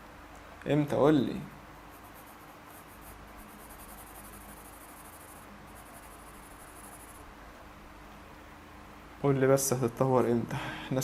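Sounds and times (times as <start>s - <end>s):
pencil scratching on paper: 1.9s - 7.3s.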